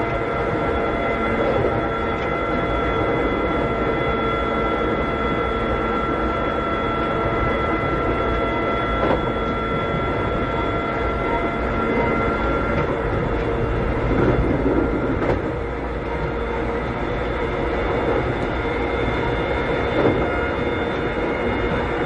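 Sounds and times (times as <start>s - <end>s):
steady whining tones: 0.0s - 22.0s
train rumble: 0.0s - 22.0s
rail joints clicking: 12.7s - 15.6s.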